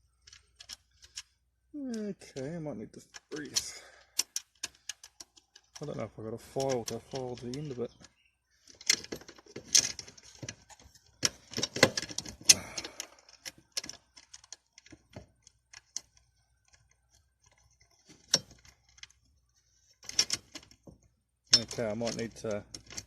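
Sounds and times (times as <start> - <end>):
metal tools clinking and rattling: 21.5 - 23.0.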